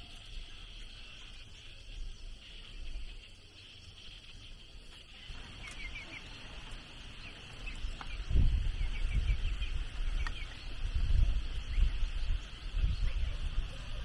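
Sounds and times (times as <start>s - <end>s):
birds chirping: 0.0s - 14.0s
high insect drone: 0.0s - 14.0s
low rumble on microphone: 5.3s - 14.0s.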